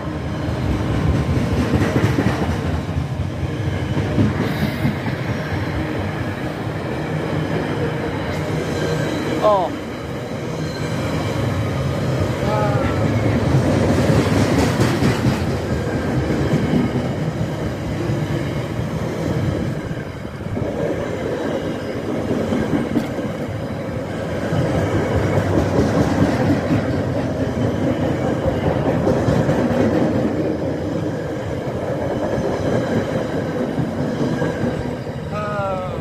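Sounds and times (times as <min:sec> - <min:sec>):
freight train wheels rolling: 0:00.0 - 0:36.0.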